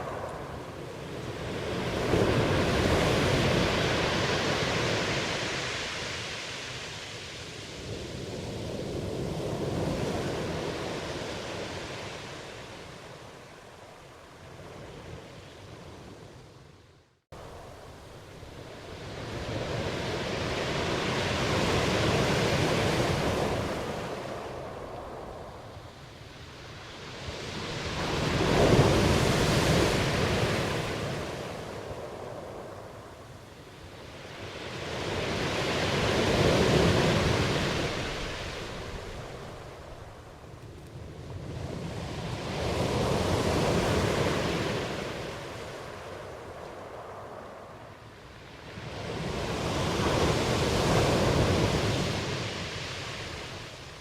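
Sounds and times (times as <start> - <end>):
ocean waves breaking: 0.0 - 13.0, 17.4 - 32.8, 34.0 - 40.2.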